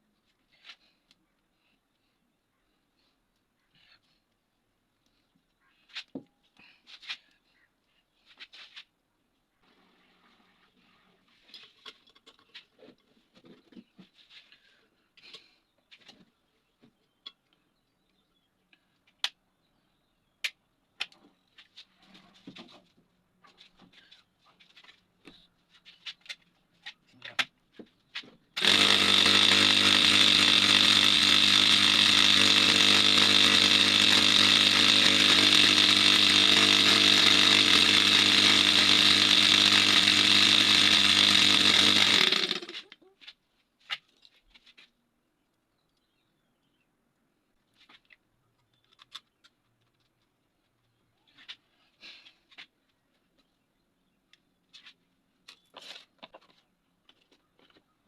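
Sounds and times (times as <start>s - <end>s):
machine running loudly: 28.6s - 42.7s.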